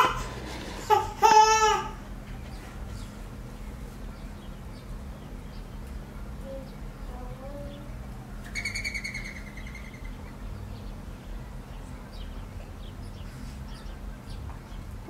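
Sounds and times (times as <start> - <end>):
faint bird chirps: 4.0 - 15.0
high drawn-out bird call: 8.4 - 10.4.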